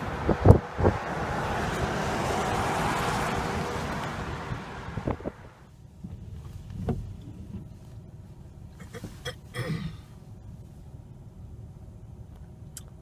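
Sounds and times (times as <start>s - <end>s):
rush of wind: 0.0s - 5.7s
car road rumble: 0.0s - 13.0s.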